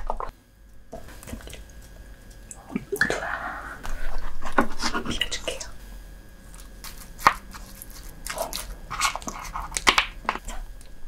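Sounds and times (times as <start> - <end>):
wet chewing and squishing: 6.5 - 10.9.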